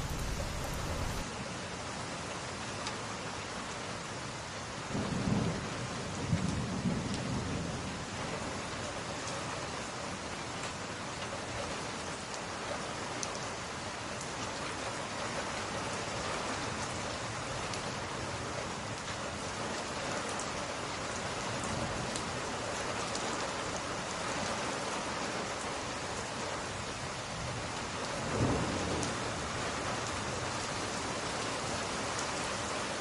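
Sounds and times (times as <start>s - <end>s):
low rumble: 0.0s - 1.2s
faint wood fire crackles: 0.0s - 1.3s
rain on window glass: 0.0s - 1.3s, 4.9s - 33.0s.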